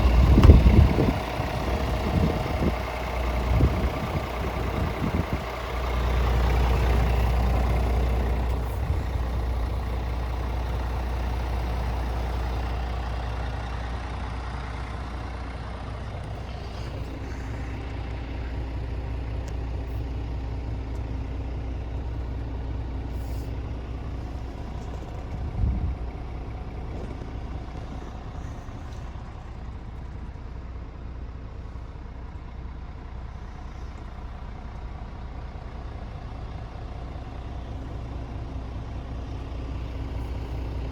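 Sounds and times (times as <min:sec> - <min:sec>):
diesel truck engine rumbling: 0:00.0 - 0:40.9
thump: 0:00.3 - 0:00.8.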